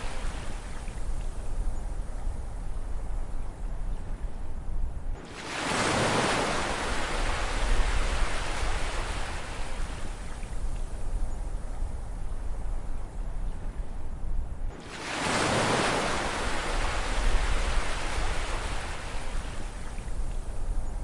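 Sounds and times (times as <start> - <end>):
low rumble of surf: 0.0 - 21.0
ocean wave breaking: 14.8 - 19.3.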